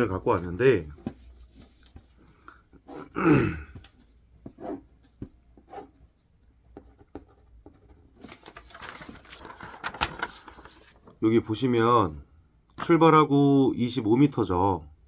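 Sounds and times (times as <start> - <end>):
pen scratching on paper: 4.5 - 4.8
paper handling: 8.2 - 11.2.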